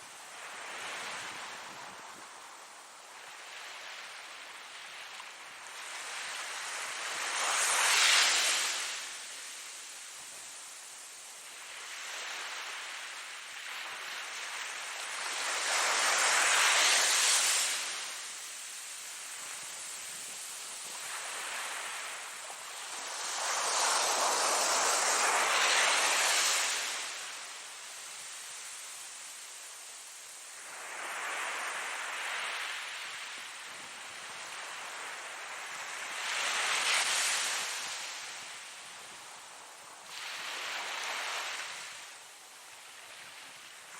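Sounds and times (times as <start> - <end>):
ocean waves washing in: 11.0 - 43.9.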